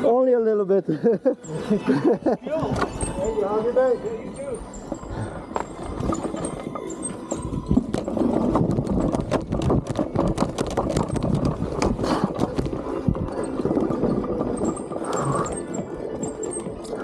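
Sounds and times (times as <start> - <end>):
unicycle clattering over rocks: 4.8 - 17.0.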